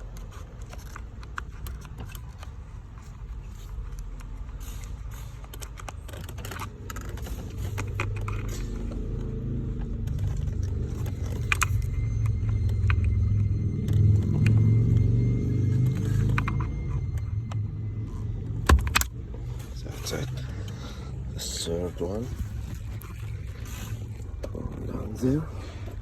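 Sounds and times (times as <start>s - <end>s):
tool clicking and scraping: 0.0s - 13.2s
low rumble: 7.4s - 21.4s.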